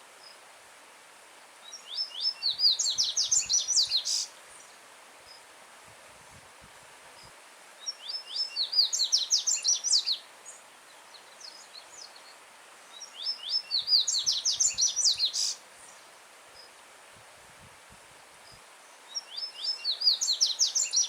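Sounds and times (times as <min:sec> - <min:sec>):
bird singing sharp phrases: 0:01.7 - 0:04.3, 0:07.9 - 0:10.2, 0:11.1 - 0:15.6, 0:19.1 - 0:21.0.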